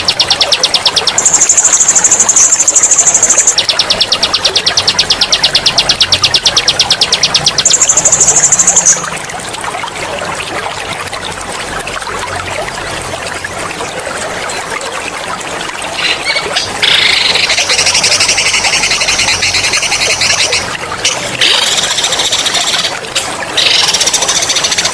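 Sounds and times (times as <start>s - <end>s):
songbird trilling: 0.0s - 9.0s
water trickling: 0.0s - 24.9s.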